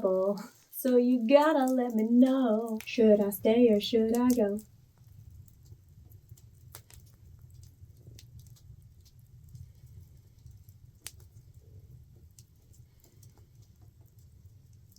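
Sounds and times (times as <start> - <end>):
low steady rumble: 0.0 - 14.9
wood fire crackling: 0.0 - 14.9.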